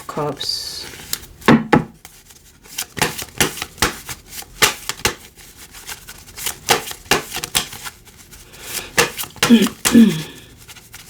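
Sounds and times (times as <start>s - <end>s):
cards shuffling and snapping: 2.0s - 8.0s, 8.7s - 10.4s.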